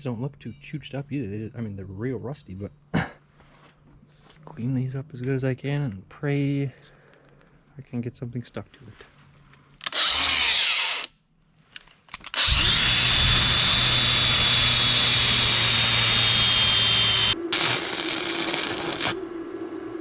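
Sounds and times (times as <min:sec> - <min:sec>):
power tool whining: 0:09.8 - 0:11.1, 0:12.2 - 0:19.2.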